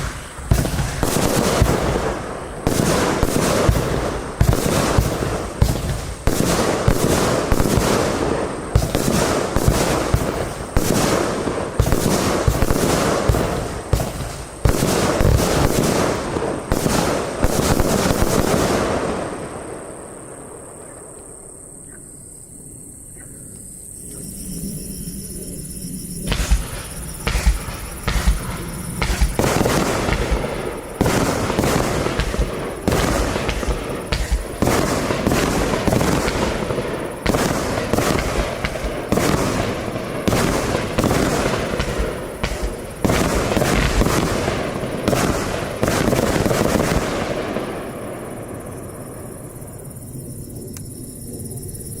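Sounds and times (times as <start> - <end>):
continuous hiss: 0.0 - 52.0
firework shells banging: 26.3 - 47.6.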